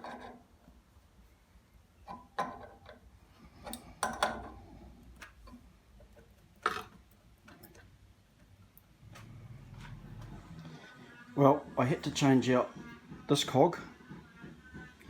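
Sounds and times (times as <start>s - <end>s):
metal tools clicking and knocking: 2.0s - 4.6s, 5.2s - 7.9s.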